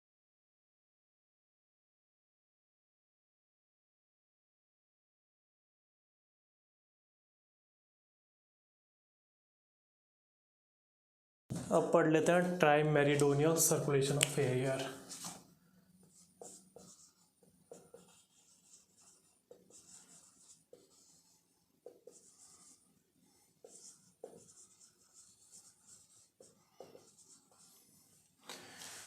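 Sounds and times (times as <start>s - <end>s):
marker writing on whiteboard: 13.2s - 29.0s.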